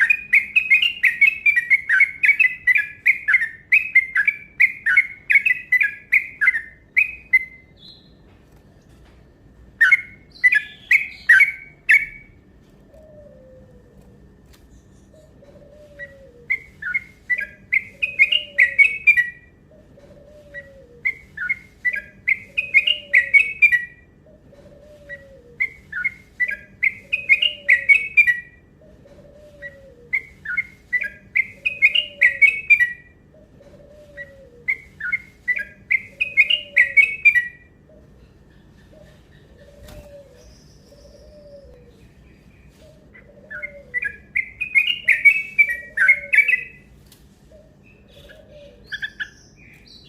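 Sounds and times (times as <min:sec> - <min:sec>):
bulbul singing whistled notes: 0:15.9 - 0:19.4, 0:20.5 - 0:24.0, 0:25.1 - 0:28.6, 0:29.6 - 0:33.1, 0:34.1 - 0:37.7, 0:43.6 - 0:46.9.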